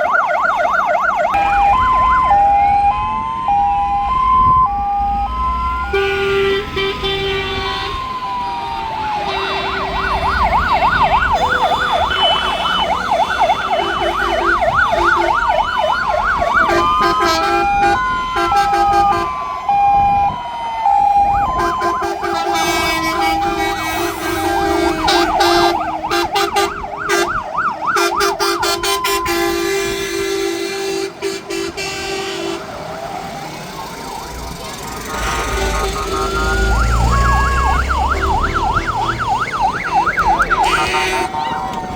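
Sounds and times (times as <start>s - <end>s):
fire engine sirens: 0.0s - 41.9s
steady horn tones: 5.2s - 15.7s, 16.4s - 19.5s, 21.4s - 27.4s, 28.0s - 32.8s, 34.6s - 41.6s.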